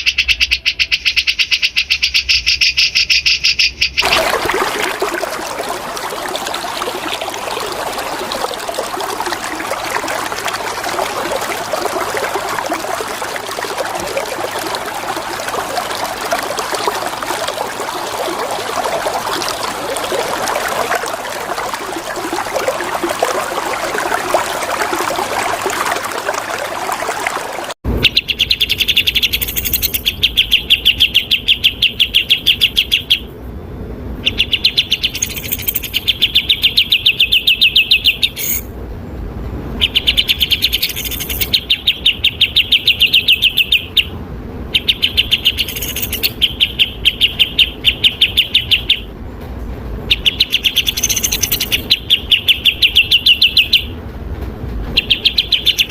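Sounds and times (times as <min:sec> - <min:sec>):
bulbul trilling song: 0:00.0 - 0:33.3, 0:44.8 - 0:49.1, 0:50.1 - 0:54.0
running water: 0:04.0 - 0:27.8, 0:35.0 - 0:36.1, 0:40.5 - 0:41.6, 0:44.8 - 0:46.4, 0:50.1 - 0:52.0.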